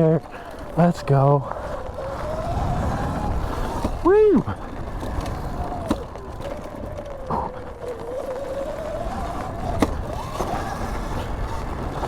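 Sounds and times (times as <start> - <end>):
low rumble of riding noise: 0.0 - 12.0
electric motor whining: 5.0 - 12.0.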